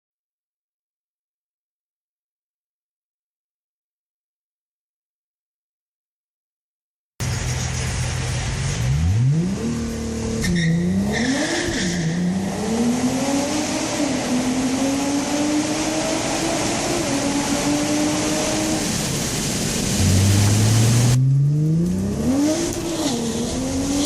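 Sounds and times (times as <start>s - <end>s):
car engine revving: 7.2s - 24.0s.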